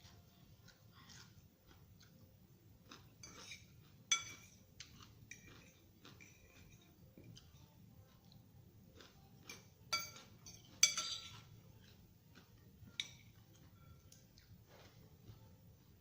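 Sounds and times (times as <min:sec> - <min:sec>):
cutlery clinking on plate: 0:03.2 - 0:04.6, 0:05.3 - 0:07.7, 0:09.4 - 0:11.9, 0:12.9 - 0:14.2.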